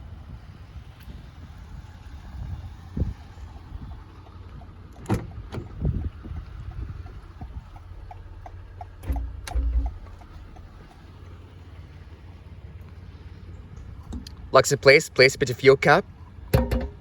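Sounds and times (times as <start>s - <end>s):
steady low rumble: 1.3s - 14.6s, 16.1s - 17.0s
fuel cap clicks and knocks: 3.6s - 11.2s, 14.0s - 14.4s, 16.5s - 17.0s.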